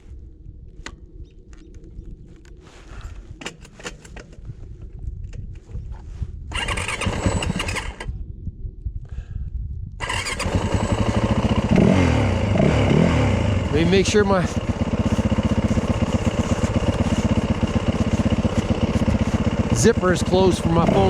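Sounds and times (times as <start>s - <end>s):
dirt bike engine starting and revving: 6.5s - 8.1s, 10.0s - 21.0s.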